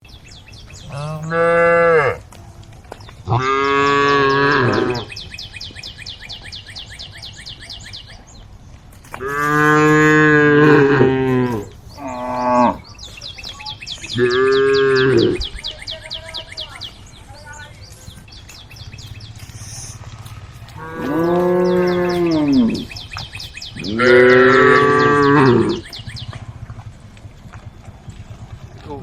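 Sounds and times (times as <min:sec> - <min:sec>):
cattle mooing: 0:00.8 - 0:02.2, 0:03.3 - 0:05.2, 0:09.2 - 0:12.9, 0:14.1 - 0:15.5, 0:19.3 - 0:23.0, 0:23.8 - 0:26.9.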